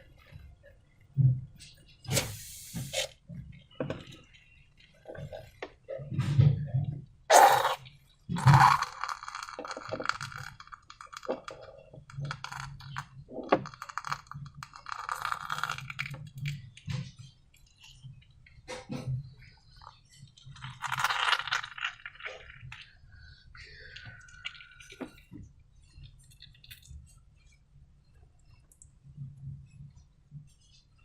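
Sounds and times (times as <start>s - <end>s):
balloon crackling: 2.1s - 3.1s
slime squelching: 7.3s - 7.8s.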